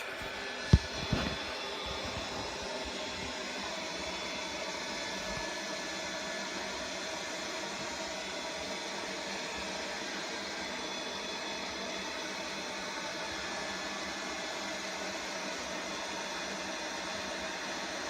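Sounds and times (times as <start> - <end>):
steady machine noise with hum: 0.0 - 17.3.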